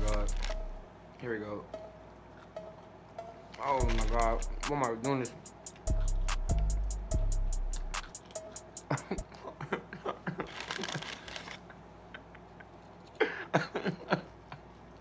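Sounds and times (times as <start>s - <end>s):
wet chewing and lip-smacking: 7.8s - 8.8s.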